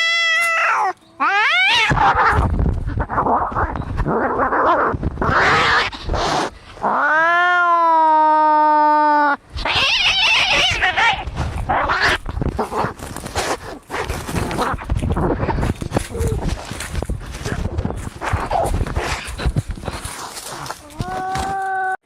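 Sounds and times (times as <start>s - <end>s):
cat yowling: 0.0s - 2.4s, 6.9s - 11.2s
cats screeching and hissing: 0.0s - 13.0s.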